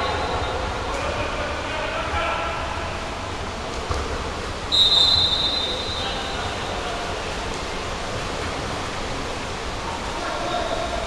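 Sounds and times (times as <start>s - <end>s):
pool hall background noise: 0.0s - 11.0s
referee's whistle blast: 4.7s - 6.2s.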